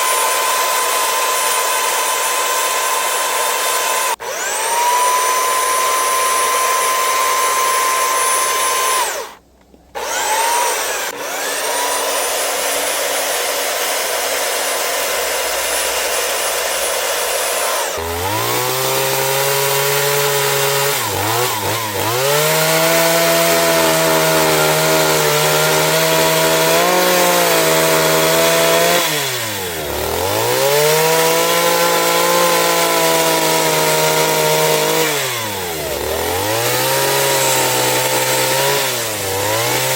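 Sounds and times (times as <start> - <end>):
high-pitched power tool whine: 0.0 - 39.9
lower-pitched motor running: 4.0 - 31.8.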